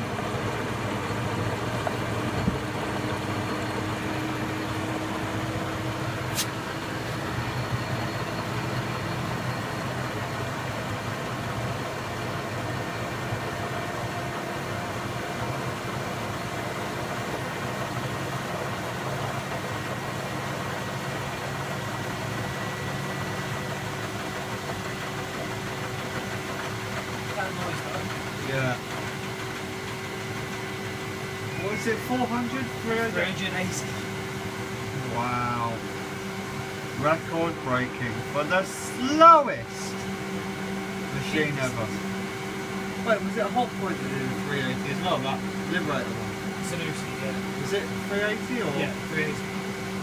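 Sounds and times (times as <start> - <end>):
washing machine motor hum: 0.0 - 50.0
short sharp click: 6.3 - 6.6.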